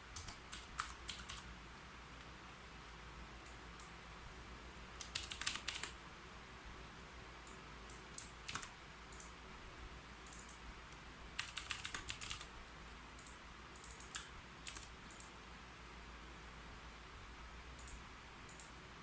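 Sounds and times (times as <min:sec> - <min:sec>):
typing on a computer keyboard: 0:00.1 - 0:01.5, 0:05.0 - 0:06.0, 0:07.5 - 0:09.4, 0:10.2 - 0:10.6, 0:11.4 - 0:12.5, 0:13.2 - 0:15.4, 0:17.8 - 0:18.8.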